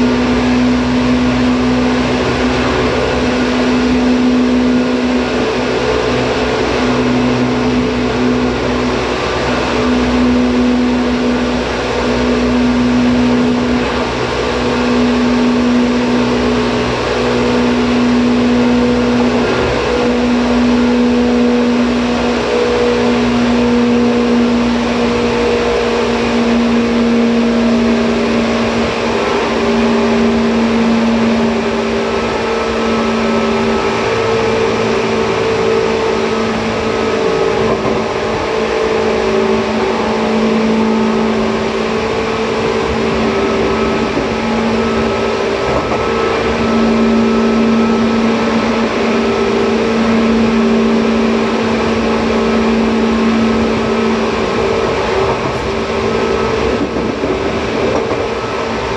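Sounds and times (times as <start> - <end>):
train motor hum: 0.0 - 58.9
wheel and track noise: 0.0 - 58.9.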